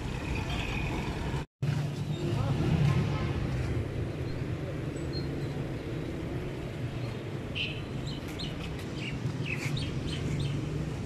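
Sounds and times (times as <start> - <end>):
small birds chirping: 6.9 - 10.7.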